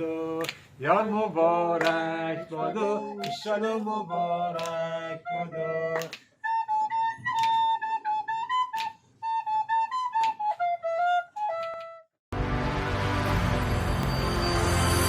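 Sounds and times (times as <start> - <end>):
solo flute melody: 2.0 - 12.2.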